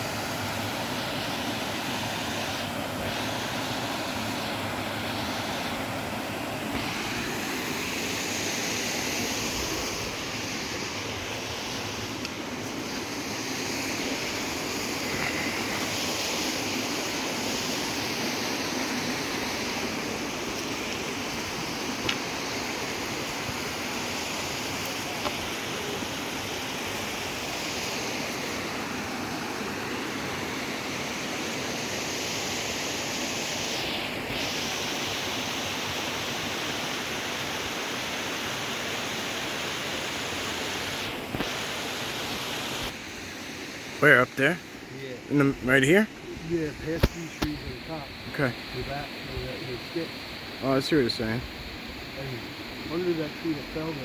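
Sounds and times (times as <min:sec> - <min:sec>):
falling water rushing: 0:00.0 - 0:54.0.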